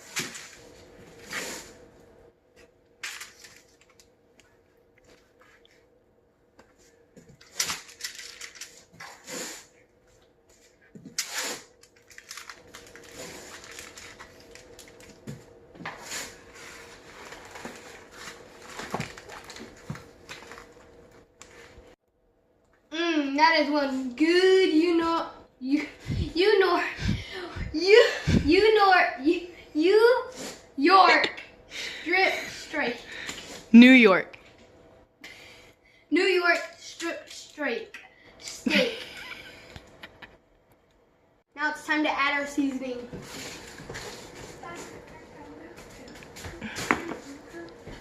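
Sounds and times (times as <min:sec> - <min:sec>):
plastic packaging rustling and tearing: 0:03.0 - 0:04.1, 0:07.4 - 0:09.7, 0:11.1 - 0:21.8.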